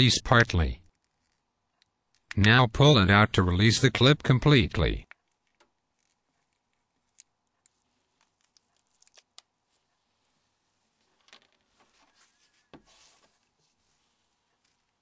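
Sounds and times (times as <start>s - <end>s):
light scraping and rustling: 9.7s - 15.0s.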